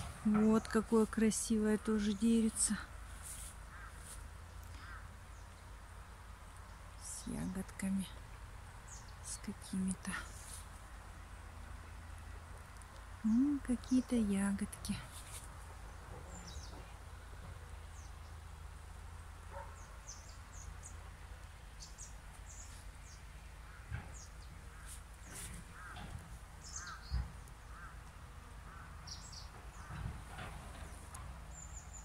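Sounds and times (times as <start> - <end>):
lower repeated bird calls: 0.0 - 5.8, 15.8 - 17.2, 19.5 - 32.0.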